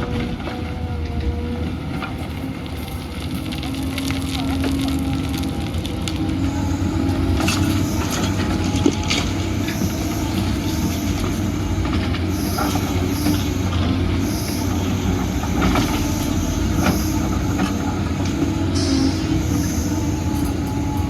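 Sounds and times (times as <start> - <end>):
excavator diesel engine drone: 0.0 - 21.0
faint high squeals: 6.5 - 21.0.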